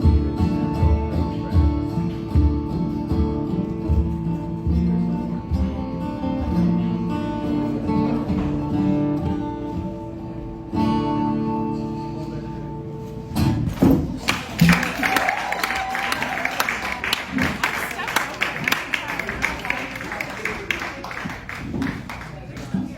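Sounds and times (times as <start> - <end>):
acoustic guitar chords: 0.0 - 14.9
crowd noise: 0.0 - 22.9
people clapping: 14.2 - 22.9.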